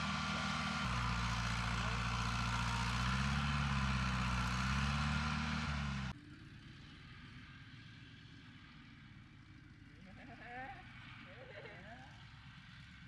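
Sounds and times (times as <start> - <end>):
heavy diesel engine under load: 0.0 - 8.1.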